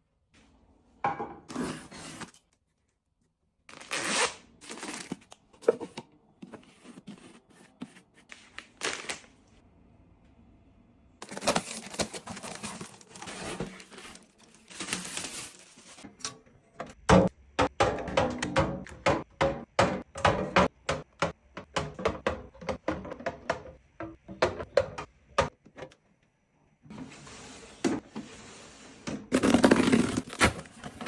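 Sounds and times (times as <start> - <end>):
packaging crinkling and tearing: 8.3 - 9.3, 11.2 - 16.0.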